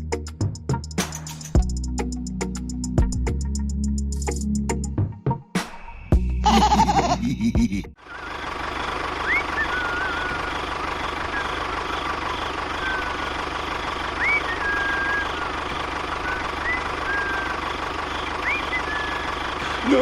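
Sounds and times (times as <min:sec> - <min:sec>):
small engine running: 0:08.0 - 0:20.0
high whistling chirps: 0:09.2 - 0:20.0.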